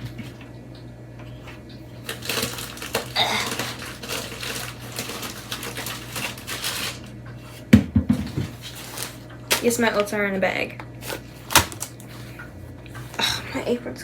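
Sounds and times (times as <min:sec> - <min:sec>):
steady low hum: 0:00.0 - 0:14.0
items rummaged in cabinet: 0:01.9 - 0:10.3.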